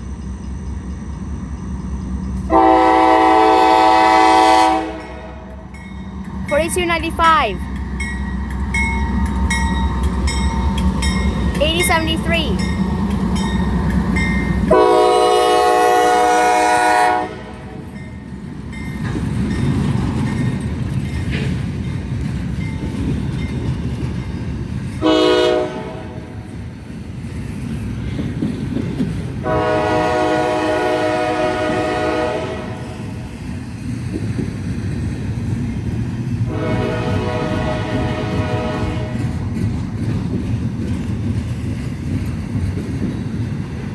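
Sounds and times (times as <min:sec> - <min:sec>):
train rumble and wheel clatter: 0:00.0 - 0:43.9
locomotive air horn blasts: 0:02.5 - 0:05.5, 0:14.7 - 0:17.8, 0:25.0 - 0:26.2, 0:29.4 - 0:32.9, 0:36.5 - 0:39.2.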